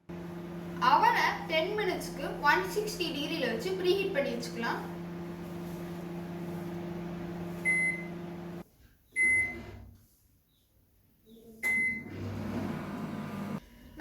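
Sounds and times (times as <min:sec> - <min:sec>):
microwave oven humming: 0:00.0 - 0:08.6, 0:11.6 - 0:13.6
keypad beeps: 0:09.2 - 0:09.6.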